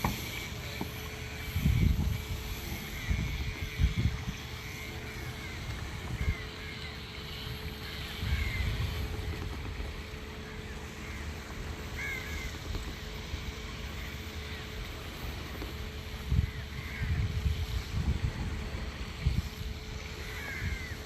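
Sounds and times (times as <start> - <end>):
wind rumbling on microphone: 0.0 - 6.7, 7.5 - 11.2, 15.4 - 21.0
faint steady hum: 0.0 - 21.0.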